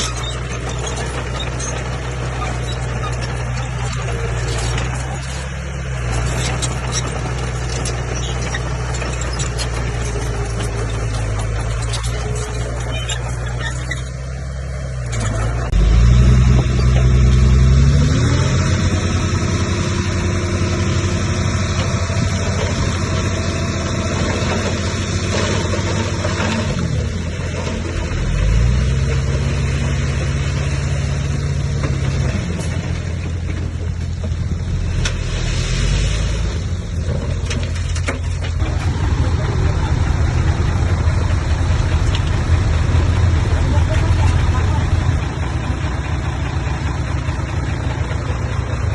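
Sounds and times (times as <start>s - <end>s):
bulldozer diesel engine revving: 0.0s - 48.9s.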